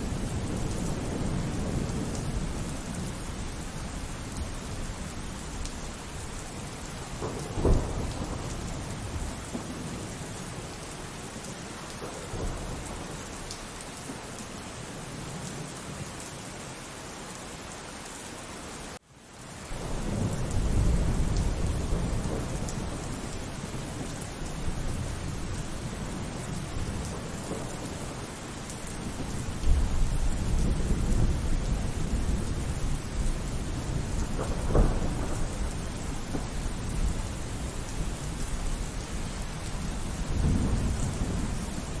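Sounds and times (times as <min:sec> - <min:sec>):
rolling thunder rumble: 0:00.0 - 0:10.8, 0:11.9 - 0:13.4, 0:19.7 - 0:42.0
steady rainfall: 0:00.0 - 0:42.0
thunderclap: 0:06.9 - 0:10.2, 0:19.7 - 0:28.3, 0:28.9 - 0:42.0.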